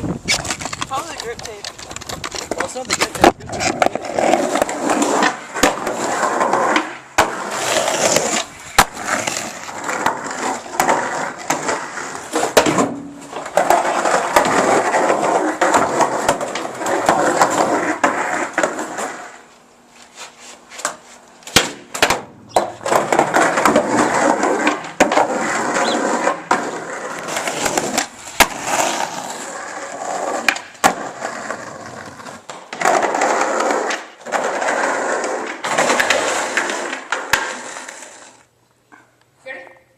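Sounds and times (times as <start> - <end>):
skateboard wheels rolling on pavement: 0.0 - 38.6
skateboard clacking on ground: 0.2 - 19.4, 20.8 - 38.4.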